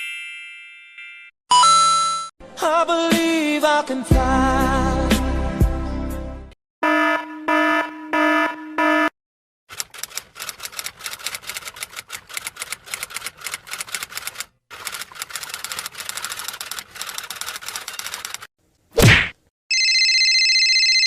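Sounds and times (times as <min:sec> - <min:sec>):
rapid uneven clicking: 0:09.7 - 0:18.5.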